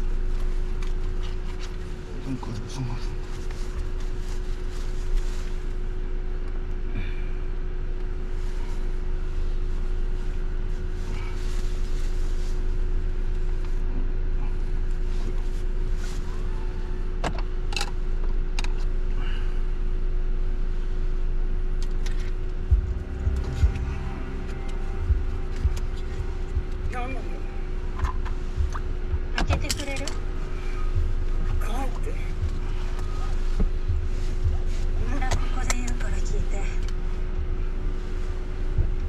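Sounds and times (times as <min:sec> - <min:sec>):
car engine and road noise rumble: 0:00.0 - 0:39.0
constant hum: 0:00.0 - 0:39.0.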